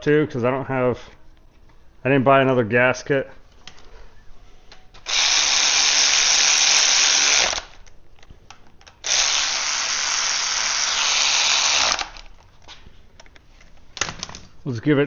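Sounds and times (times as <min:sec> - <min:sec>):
power drill running: 0:05.0 - 0:07.9, 0:09.0 - 0:12.3.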